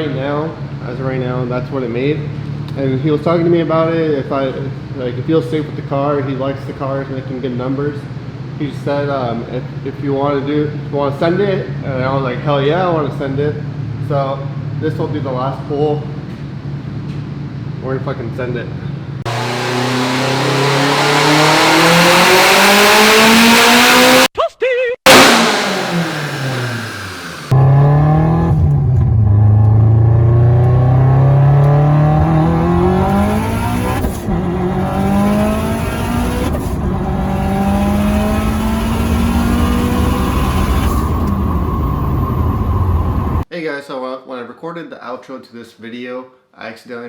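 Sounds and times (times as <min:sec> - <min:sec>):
engine revving at full throttle: 0:19.3 - 0:24.3, 0:25.1 - 0:43.5.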